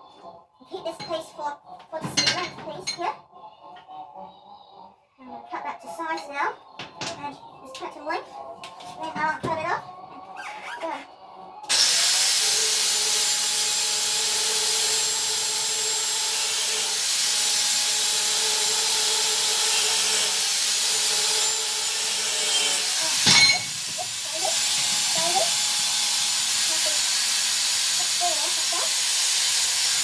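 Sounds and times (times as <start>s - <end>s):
power tool cutting steel: 11.7s - 30.0s.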